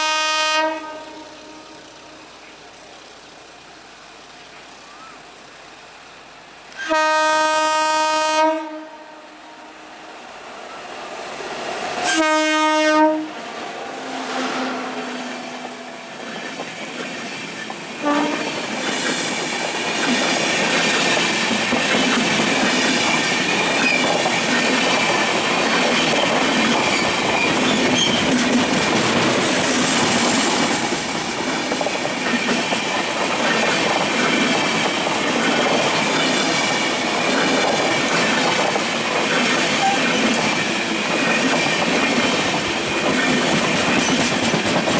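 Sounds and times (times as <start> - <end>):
train horn blast: 0.0 - 2.3, 6.8 - 9.9, 12.0 - 16.1, 18.0 - 18.6
train passing at speed: 0.0 - 44.9
wheels clattering over rail joints: 18.5 - 44.9.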